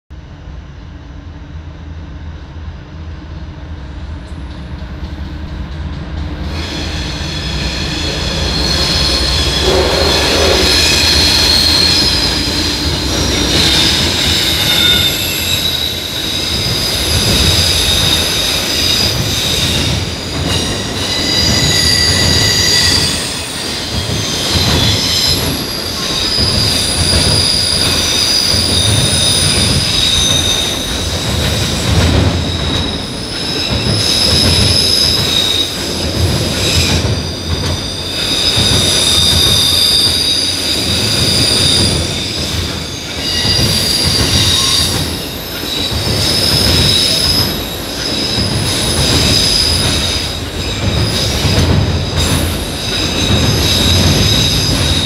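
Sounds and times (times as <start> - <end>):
freight train rumble: 0.1 - 55.0
metallic wheel squealing: 6.6 - 31.9, 36.6 - 51.6.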